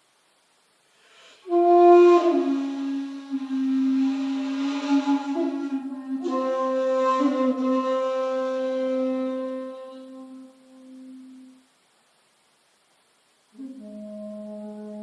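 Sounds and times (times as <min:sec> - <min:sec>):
bamboo flute low note: 0:01.4 - 0:11.6.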